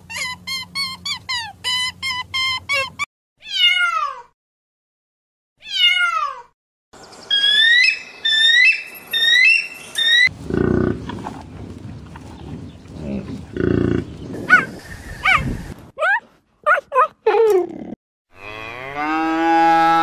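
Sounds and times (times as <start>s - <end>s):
cheetah chirping: 7.3s - 10.3s
eagle piping calls: 7.3s - 10.3s
buffalo grunting: 10.3s - 14.8s.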